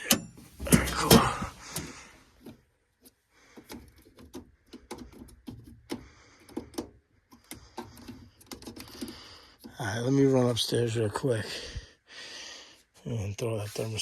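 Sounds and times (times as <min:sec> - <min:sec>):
tools clicking and knocking: 0:00.0 - 0:02.6, 0:03.5 - 0:09.7.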